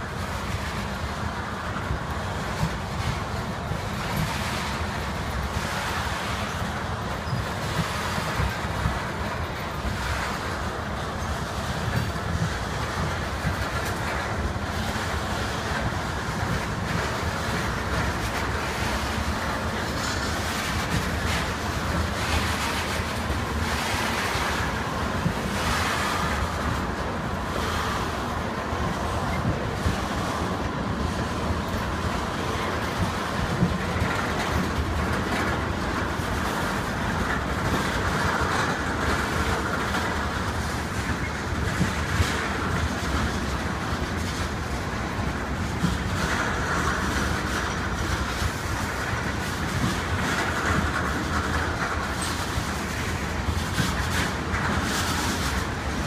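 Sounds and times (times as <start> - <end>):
freight train wheels rumbling on rail: 0.0 - 56.0.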